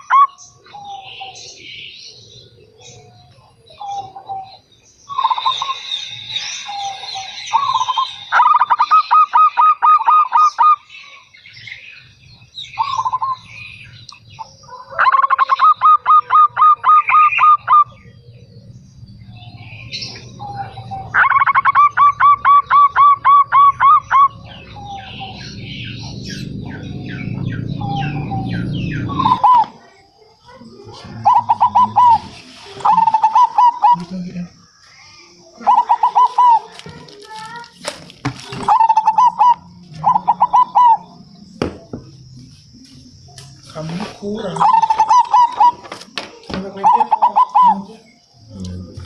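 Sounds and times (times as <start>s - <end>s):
dove cooing: 0.0s - 5.9s, 14.7s - 18.7s, 19.4s - 34.6s, 35.4s - 37.0s, 38.4s - 41.7s, 44.4s - 49.0s
high bird chirps: 0.0s - 37.8s, 38.6s - 42.2s, 42.8s - 48.6s
low rumble: 24.3s - 29.5s.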